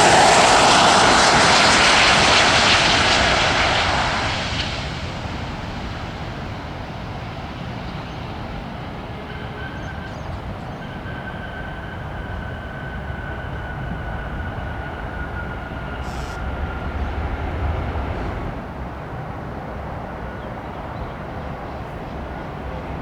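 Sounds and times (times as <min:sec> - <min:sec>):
jet engine rush: 0:00.0 - 0:08.5, 0:12.4 - 0:20.0
jet engine whine: 0:00.0 - 0:23.0
low rumble: 0:15.2 - 0:19.0.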